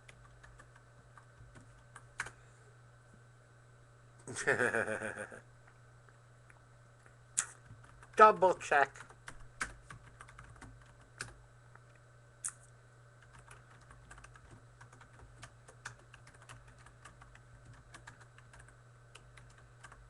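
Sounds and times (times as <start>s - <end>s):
keyboard typing: 0.0s - 2.4s, 7.4s - 11.4s, 13.2s - 20.0s
low steady hum: 0.0s - 20.0s.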